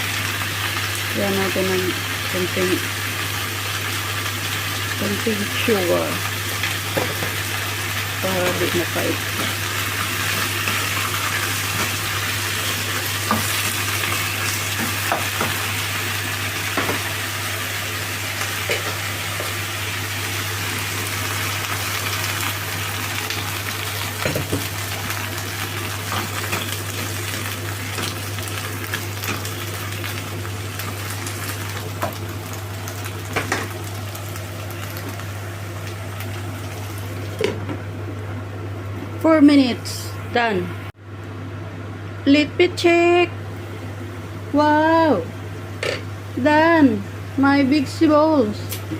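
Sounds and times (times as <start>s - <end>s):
vegetables sizzling in a pan: 0.0s - 37.6s.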